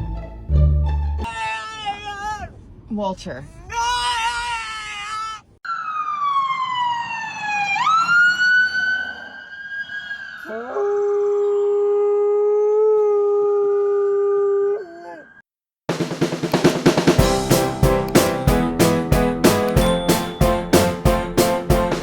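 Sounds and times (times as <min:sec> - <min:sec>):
dog howling: 0:10.4 - 0:15.4.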